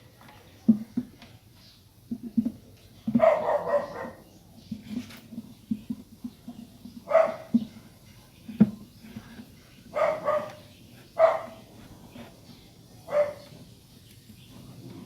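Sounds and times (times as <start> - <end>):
dog barking: 3.1 - 4.2, 7.1 - 7.5, 9.9 - 10.6, 11.2 - 11.7, 13.1 - 13.5.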